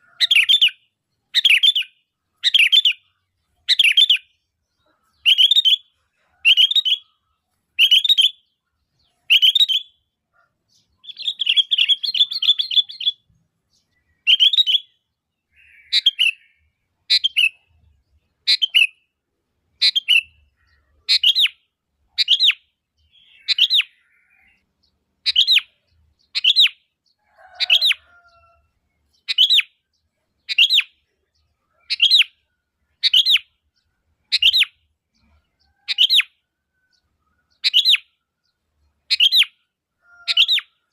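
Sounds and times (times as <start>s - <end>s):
bird chattering: 0.0s - 17.7s, 18.4s - 19.0s, 19.8s - 24.6s, 29.1s - 29.7s, 31.7s - 33.5s, 34.3s - 36.3s
bird chirping: 0.0s - 40.9s.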